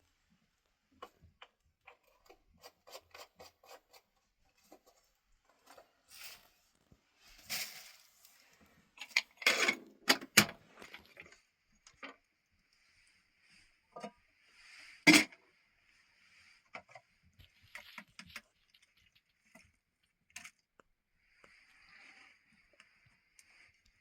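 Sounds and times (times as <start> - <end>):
rustling and scraping: 0.9 - 24.0
objects knocking and scraping: 9.0 - 12.2, 15.1 - 15.4.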